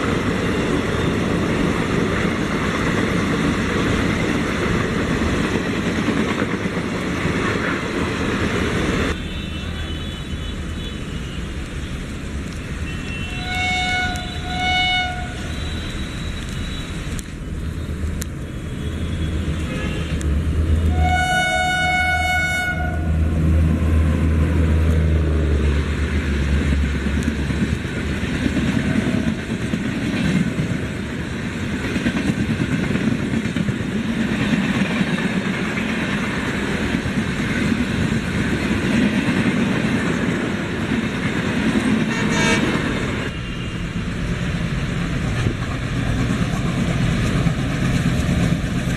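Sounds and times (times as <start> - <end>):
moving train rumble: 0.0 - 48.9
train horn blast: 12.9 - 16.2, 20.8 - 23.2, 42.0 - 43.8.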